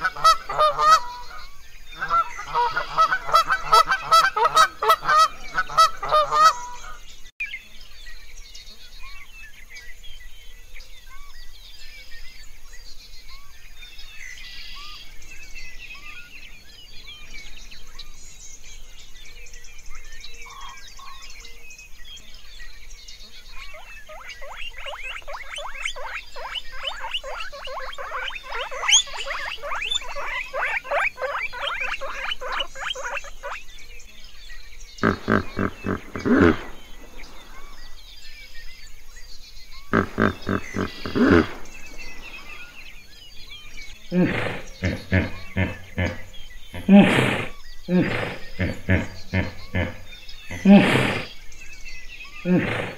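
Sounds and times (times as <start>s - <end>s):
bird chirps: 0.0s - 52.9s
deep animal call: 23.6s - 33.6s, 35.0s - 37.8s, 39.9s - 42.6s, 44.0s - 51.4s, 52.4s - 52.9s
rodent squeaking: 23.7s - 33.6s.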